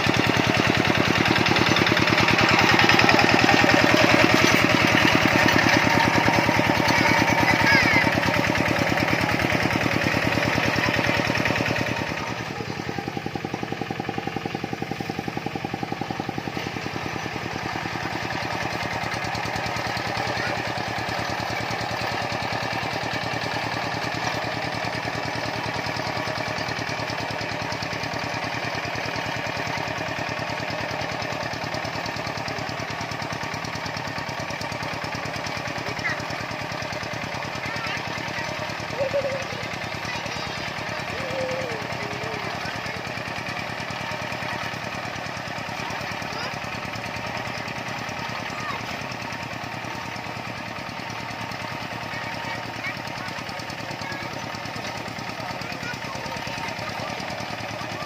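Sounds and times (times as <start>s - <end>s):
tractor engine pulsing: 0.0s - 58.0s.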